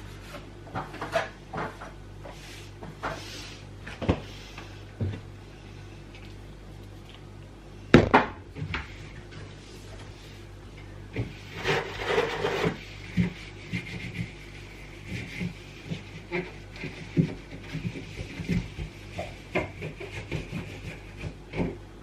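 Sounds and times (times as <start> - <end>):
steady low hum: 0.0 - 22.0
rubbing or scraping: 11.2 - 21.7.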